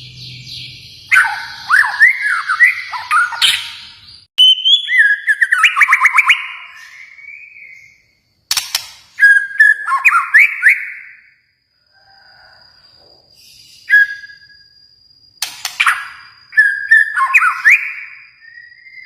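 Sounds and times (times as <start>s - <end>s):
songbird whistling and clicking: 8.5s - 11.0s, 15.4s - 19.0s.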